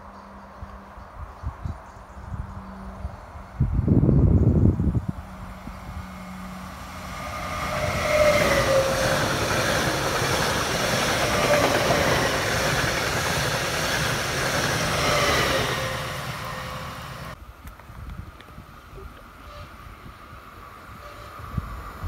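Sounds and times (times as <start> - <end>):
train wheels rumbling on rails: 3.8 - 18.6
whining tone dropping in pitch: 5.4 - 9.6.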